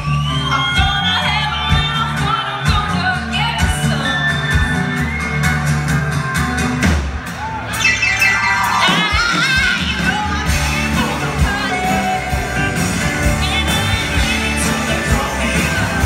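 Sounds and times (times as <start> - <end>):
live country-rock band: 0.0 - 16.0
lead singer singing: 8.8 - 16.0.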